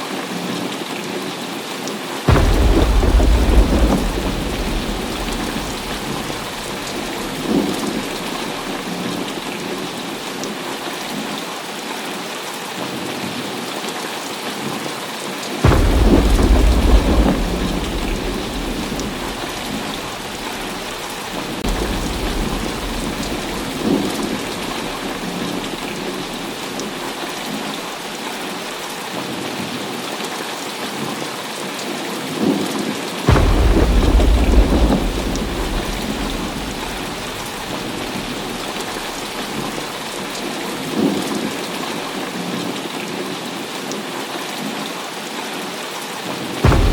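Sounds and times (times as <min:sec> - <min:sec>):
heavy rain falling: 0:00.1 - 0:46.9
rolling thunder: 0:02.3 - 0:10.4, 0:15.6 - 0:27.7, 0:33.3 - 0:42.2, 0:46.6 - 0:46.9.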